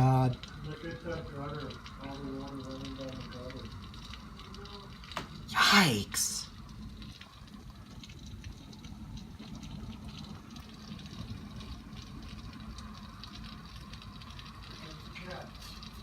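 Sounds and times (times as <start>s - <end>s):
hailstones ticking: 0.0s - 5.8s
heavy rain: 0.0s - 16.0s.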